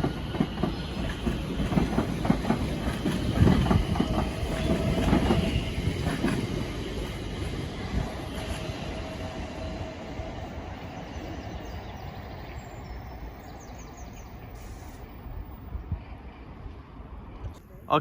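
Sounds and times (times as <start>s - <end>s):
train wheels clattering over joints: 0.0s - 8.9s.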